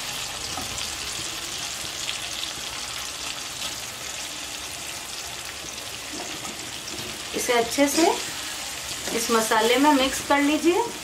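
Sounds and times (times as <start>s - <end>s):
paste sizzling in oil: 0.0s - 11.0s.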